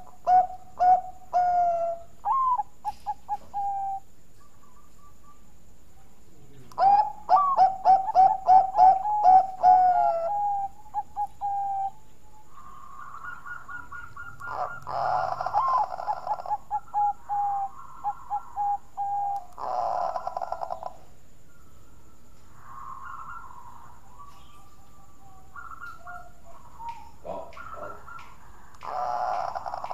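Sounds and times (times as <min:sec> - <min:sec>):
dove cooing: 0:00.0 - 0:29.9.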